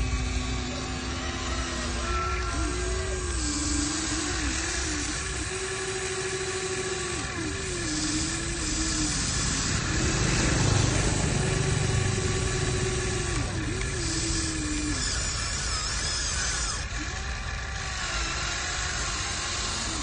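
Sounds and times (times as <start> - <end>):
deep rumble: 0.0 - 15.0
electric gear motors whining: 0.0 - 20.0.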